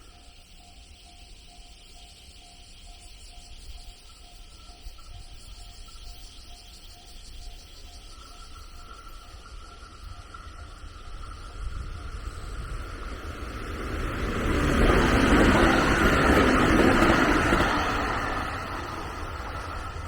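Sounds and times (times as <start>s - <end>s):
insects chirring: 0.0s - 20.0s
vehicle passing by: 12.2s - 20.0s.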